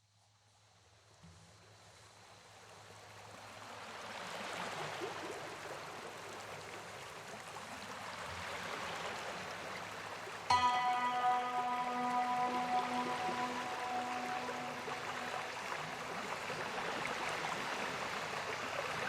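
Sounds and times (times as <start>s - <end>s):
rushing water: 3.6s - 19.0s.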